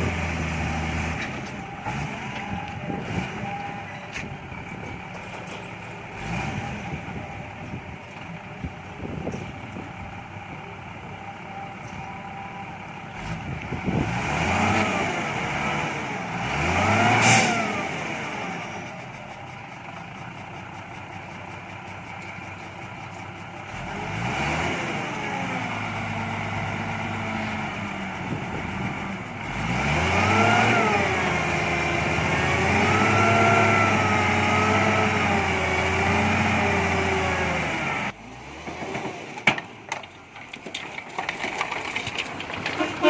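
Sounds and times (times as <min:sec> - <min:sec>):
truck diesel engine revving: 0:00.0 - 0:03.8, 0:06.1 - 0:07.5, 0:12.3 - 0:21.0, 0:23.6 - 0:39.3.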